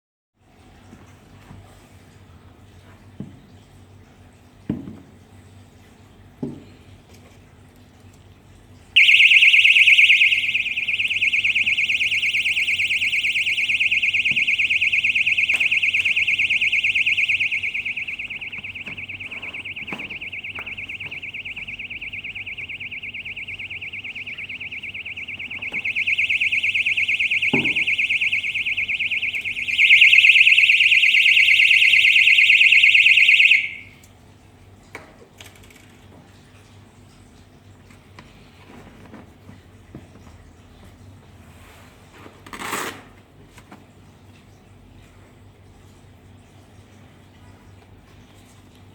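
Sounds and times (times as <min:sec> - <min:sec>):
electronic alarm buzzer: 0:09.0 - 0:33.9.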